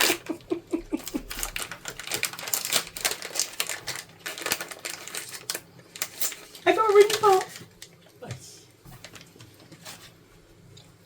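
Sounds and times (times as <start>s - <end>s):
packaging crinkling and clicking: 1.0s - 8.0s, 9.0s - 10.0s.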